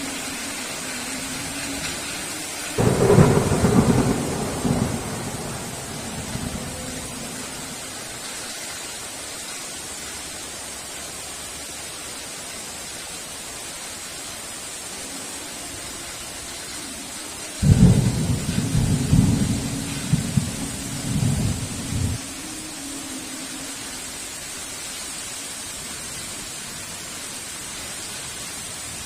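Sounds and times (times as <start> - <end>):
heavy rain hissing: 0.0 - 29.0
thunderclap with low rumble: 2.8 - 8.2, 17.6 - 22.2.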